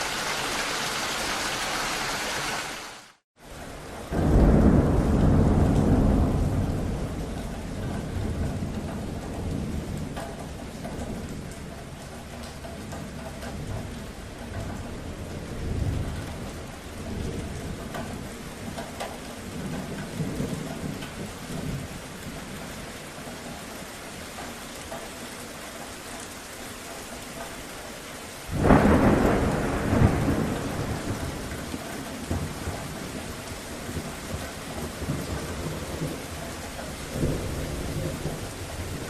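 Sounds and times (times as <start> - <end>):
steady rain: 0.0 - 39.0
low thunder rumble: 4.0 - 12.3, 28.5 - 39.0.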